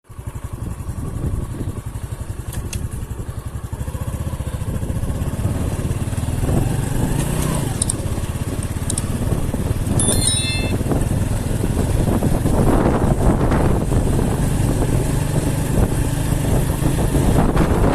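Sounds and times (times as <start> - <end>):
vehicle engine running: 0.1 - 17.9
short high chirps: 9.9 - 10.9.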